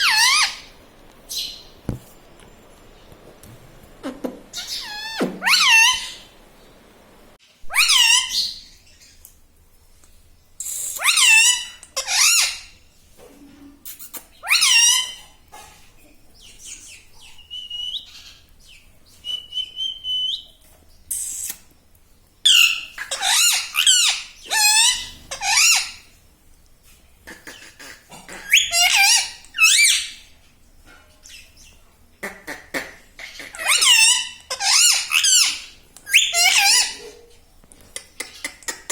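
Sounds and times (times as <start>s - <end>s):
parrot squawking: 0.0s - 1.6s, 4.5s - 6.3s, 7.7s - 8.6s, 10.9s - 12.7s, 14.1s - 15.2s, 22.5s - 26.1s, 27.4s - 30.2s, 32.2s - 37.3s.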